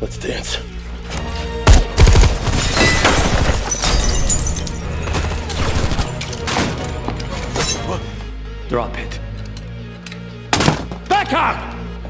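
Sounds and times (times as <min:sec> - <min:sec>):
music: 0:00.0 - 0:12.0
debris clattering: 0:00.7 - 0:08.3, 0:10.5 - 0:11.3
heavy crashes: 0:01.0 - 0:07.6
glass shattering: 0:01.0 - 0:08.3, 0:10.5 - 0:11.1.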